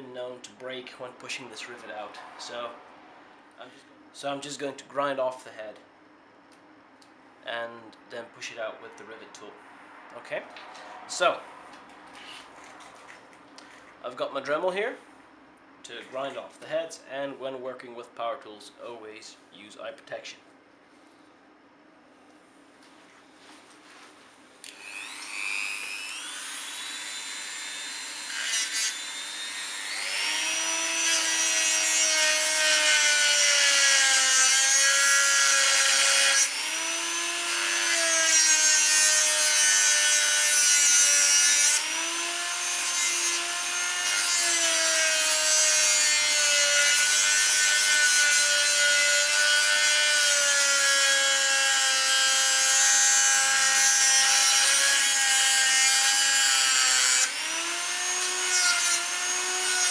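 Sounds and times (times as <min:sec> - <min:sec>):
rotary tool grinding metal: 0:24.6 - 0:59.9.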